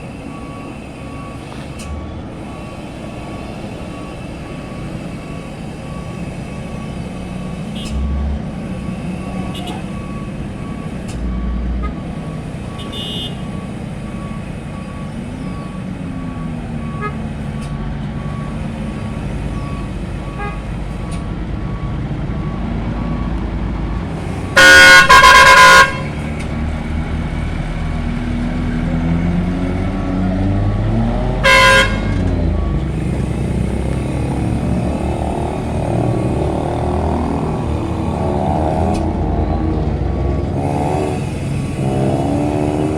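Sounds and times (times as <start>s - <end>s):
heavy truck engines running: 0.0s - 42.9s
vehicle horn blast: 12.8s - 13.5s, 20.3s - 20.7s, 24.5s - 26.2s, 31.4s - 32.2s.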